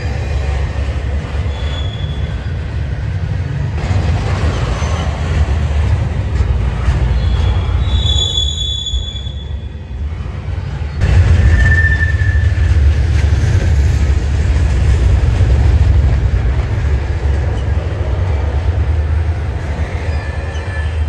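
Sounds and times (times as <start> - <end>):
train wheel squeal: 0.0 - 3.4, 4.1 - 14.2, 19.6 - 21.0
railcars rumbling on track: 0.0 - 21.0.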